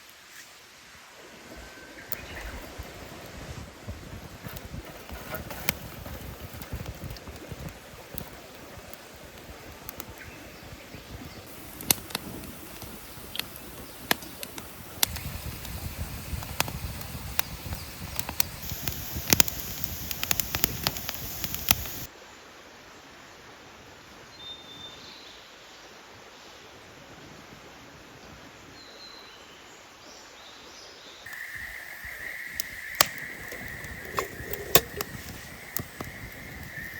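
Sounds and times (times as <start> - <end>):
campfire crackling and popping: 2.1 - 22.1, 31.3 - 36.9.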